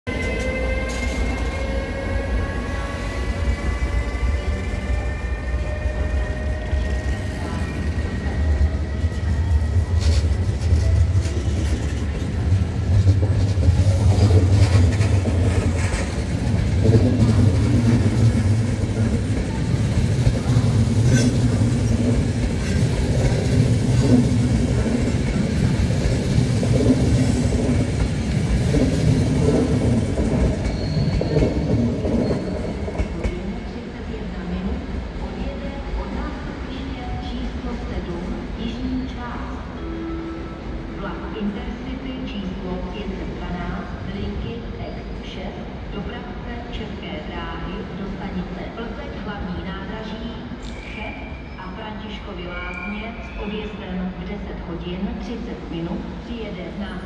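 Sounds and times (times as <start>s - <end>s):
train wheels rumbling on track: 0.1s - 38.8s.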